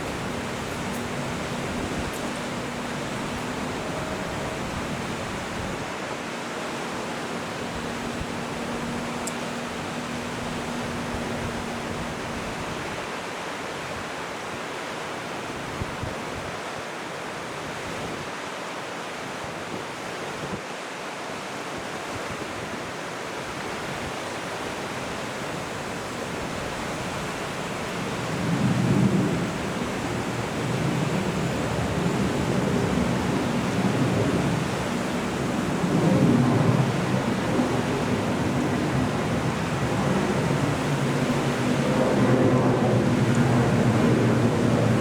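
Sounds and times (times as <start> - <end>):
faint hum: 0.0 - 5.8, 24.9 - 45.0
water noise: 0.0 - 45.0
wind: 0.0 - 45.0.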